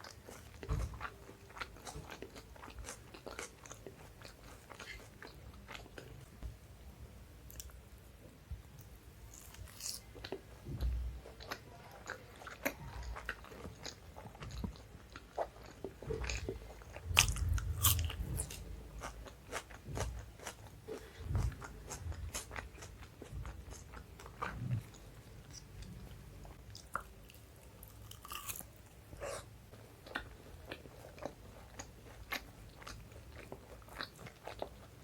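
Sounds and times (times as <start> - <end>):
wet chewing with mouth clicks: 8.8 - 35.0.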